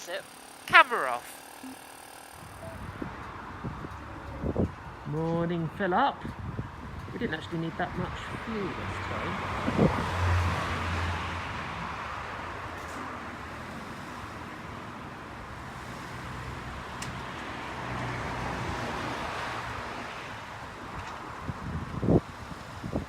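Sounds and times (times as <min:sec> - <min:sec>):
small motorbike engine running: 0:00.0 - 0:03.1
wind and road noise: 0:00.0 - 0:23.0.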